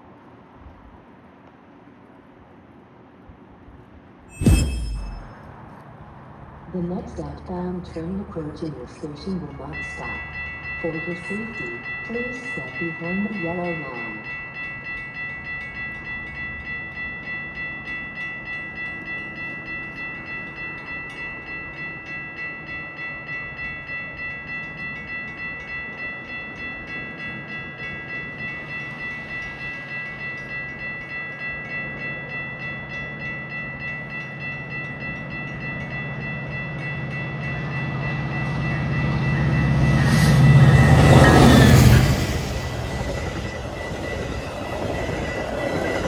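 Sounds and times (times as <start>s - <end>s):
train rumble: 0.0s - 46.0s
warning bell ringing: 4.3s - 5.4s, 8.0s - 46.0s.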